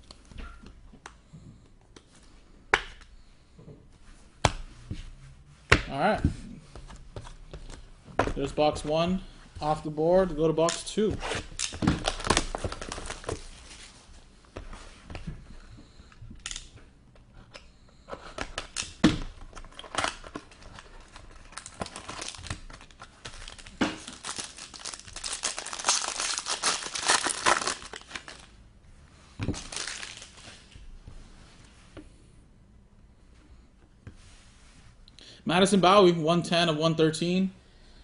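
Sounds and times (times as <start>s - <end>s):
plastic wrapping tearing and crinkling: 11.2s - 13.8s, 19.7s - 28.5s, 29.6s - 30.6s.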